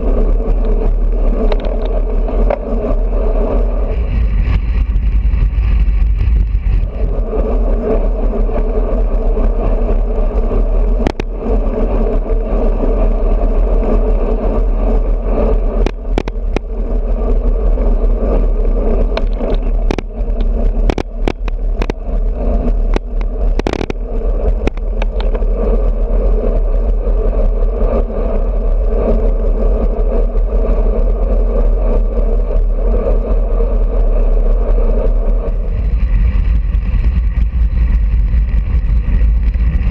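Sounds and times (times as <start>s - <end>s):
sharp clicks and rattles: 0.0s - 13.0s, 13.7s - 29.4s
wind and road noise: 0.0s - 39.9s.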